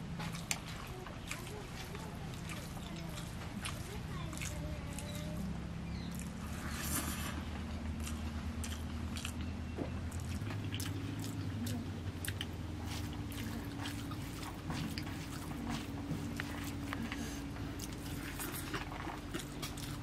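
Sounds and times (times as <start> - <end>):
person chewing food: 0.0 - 20.0
fingers squelching rice: 0.2 - 9.5, 10.1 - 20.0
wet mouth clicks: 6.0 - 6.6, 8.0 - 17.2.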